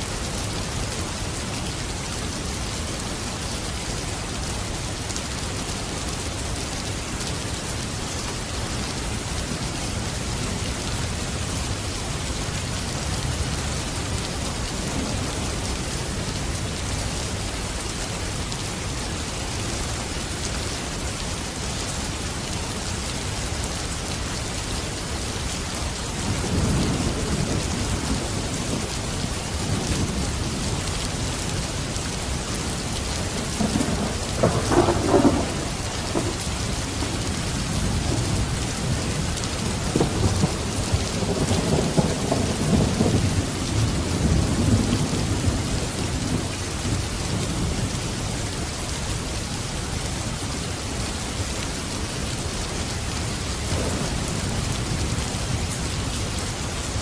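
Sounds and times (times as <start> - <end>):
heavy rain falling: 0.0 - 57.0
distant thunder rumbling: 33.4 - 46.4, 53.7 - 55.0.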